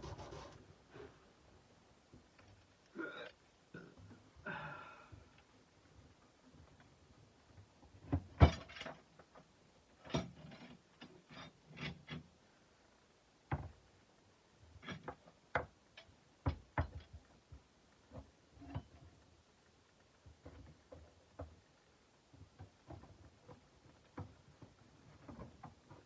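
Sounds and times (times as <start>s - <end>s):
objects scraping on hard surface: 0.0s - 1.1s
hard objects knocking and clicking: 16.4s - 17.3s.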